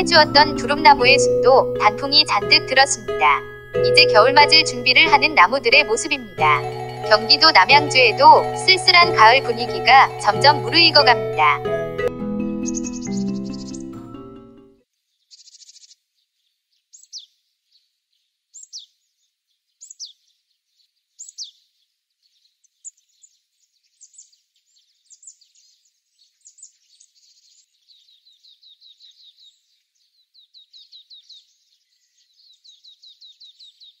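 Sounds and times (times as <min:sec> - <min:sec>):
small birds whistling and chirping: 0:12.6 - 0:14.0, 0:16.9 - 0:17.3, 0:18.5 - 0:18.9, 0:19.7 - 0:34.0.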